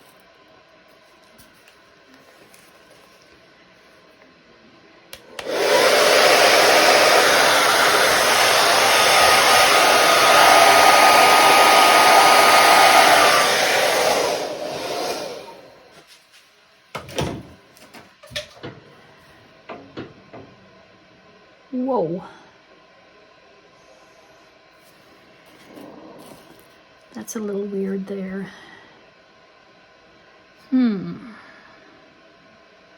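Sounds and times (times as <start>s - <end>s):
hair dryer running: 5.1s - 16.0s.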